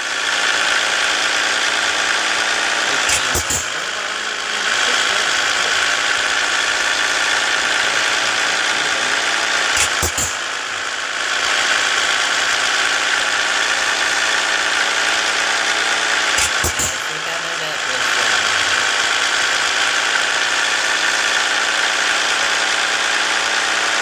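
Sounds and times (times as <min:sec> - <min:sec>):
truck diesel engine running: 0:00.0 - 0:24.0
sharp click: 0:03.1 - 0:03.9, 0:09.8 - 0:10.5, 0:16.4 - 0:17.0.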